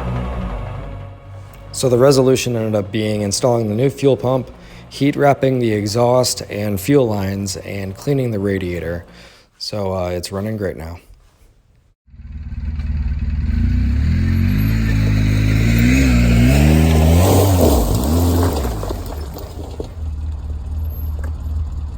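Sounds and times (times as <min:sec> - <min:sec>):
atv engine starting and revving: 0:00.0 - 0:09.4, 0:12.1 - 0:21.9.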